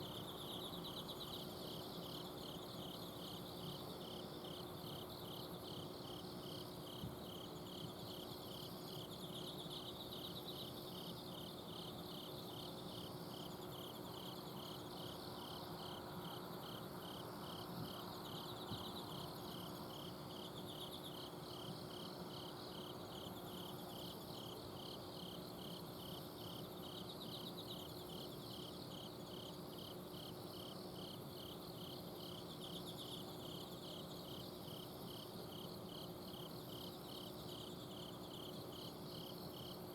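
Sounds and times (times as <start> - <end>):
insect chirping steadily: 0.0 - 39.9
insects trilling: 0.0 - 39.9.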